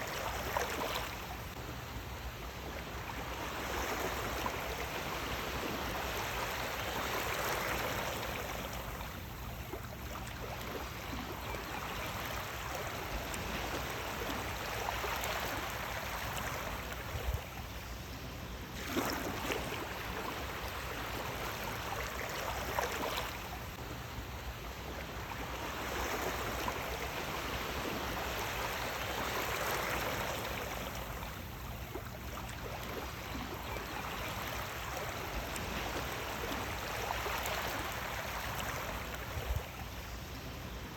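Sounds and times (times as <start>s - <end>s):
wave splashes: 18.7s - 40.9s.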